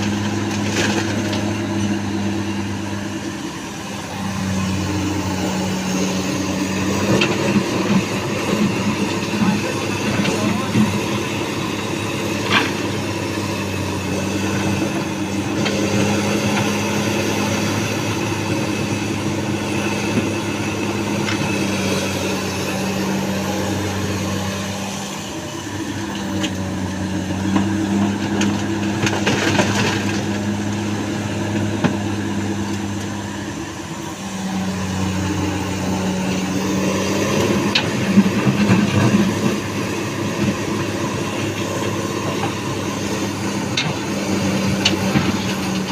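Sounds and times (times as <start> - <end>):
excavator diesel engine running: 0.0 - 45.9
clanks and knocks of digging: 27.4 - 30.4.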